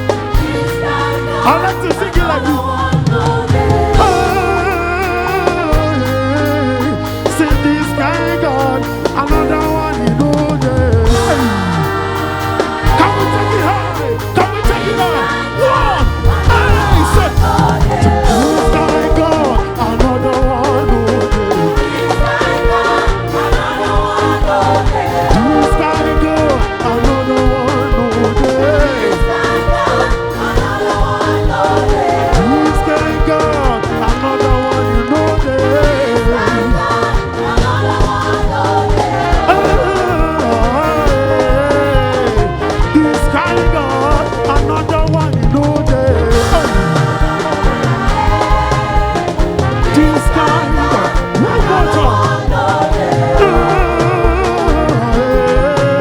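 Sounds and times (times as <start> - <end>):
drums and bass beat: 0.0 - 56.0
held keyboard chords: 0.0 - 56.0
live band playing gospel groove: 0.0 - 56.0
person singing wordless runs: 39.4 - 56.0.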